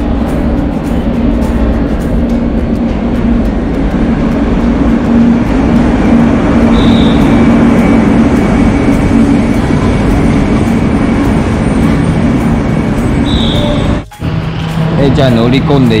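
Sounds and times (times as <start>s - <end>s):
loud low hum: 0.0s - 16.0s
train rolling past: 0.0s - 16.0s
high squeal: 6.6s - 7.6s, 13.1s - 14.2s.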